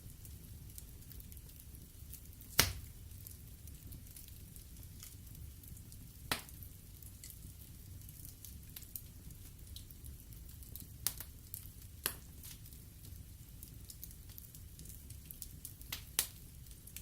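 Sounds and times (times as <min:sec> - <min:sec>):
faint crackles of fire: 0:00.0 - 0:17.0
low rumble of flames: 0:00.0 - 0:17.0
sharp pops of burning wood: 0:02.5 - 0:02.9, 0:06.3 - 0:07.4, 0:11.0 - 0:11.3, 0:12.0 - 0:12.7, 0:14.3 - 0:16.4.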